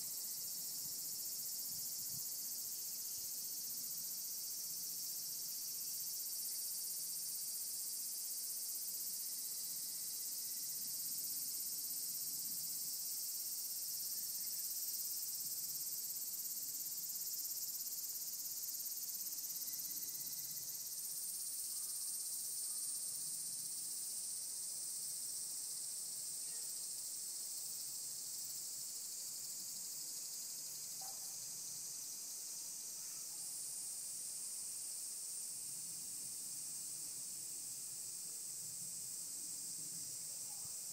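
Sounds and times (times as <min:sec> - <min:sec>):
cicadas droning: 0:00.0 - 0:40.9
higher-pitched cicada calling: 0:12.6 - 0:25.5, 0:26.4 - 0:35.4.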